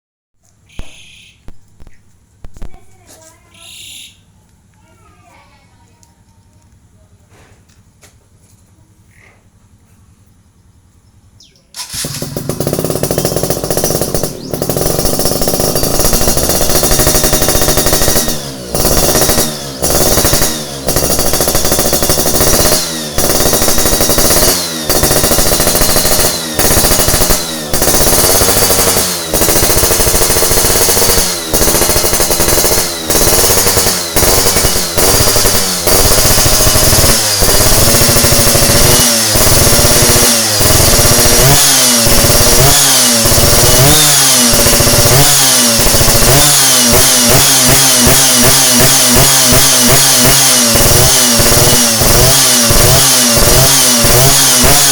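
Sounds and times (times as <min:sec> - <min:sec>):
two-stroke engine revving: 0:11.7 - 0:54.9.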